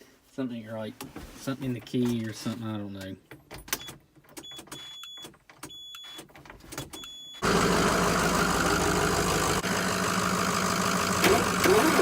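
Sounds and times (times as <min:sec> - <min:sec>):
diesel engine starting and running: 0:07.4 - 0:12.0.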